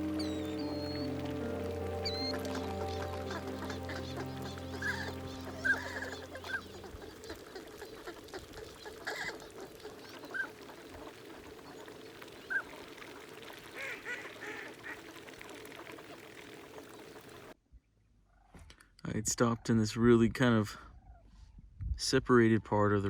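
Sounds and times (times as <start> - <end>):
high single bird calls: 0.0 - 7.4
waterfowl flock chattering: 0.0 - 17.6.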